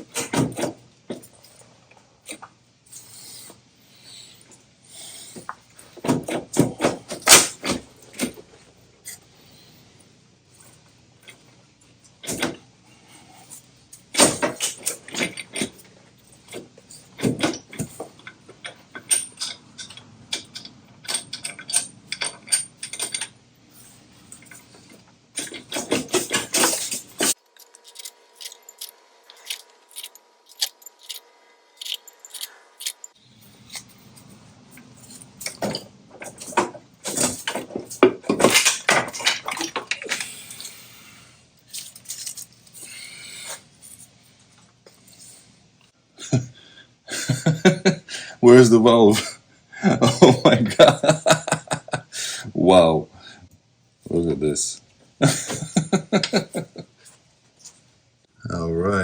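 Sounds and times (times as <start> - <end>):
tools and metal parts clanking: 0.0 - 3.5, 5.1 - 9.3, 10.5 - 12.6, 13.4 - 31.2, 31.8 - 41.0, 41.6 - 44.2, 50.0 - 51.9, 55.2 - 57.8.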